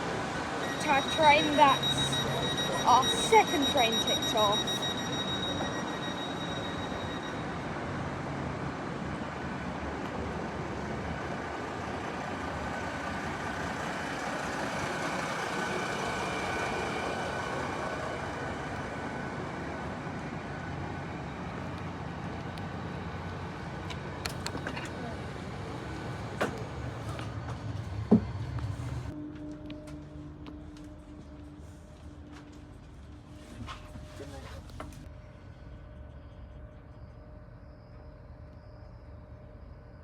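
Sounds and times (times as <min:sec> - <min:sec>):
faint whine: 0:00.0 - 0:10.2
train rumbling on track: 0:00.0 - 0:36.2.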